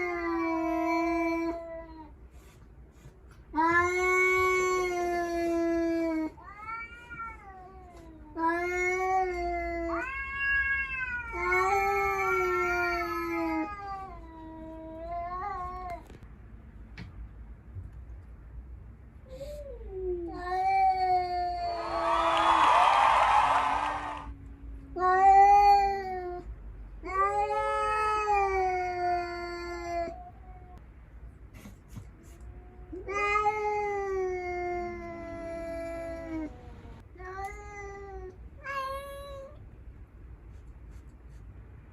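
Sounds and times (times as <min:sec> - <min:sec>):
cats yowling: 0:08.4 - 0:14.1.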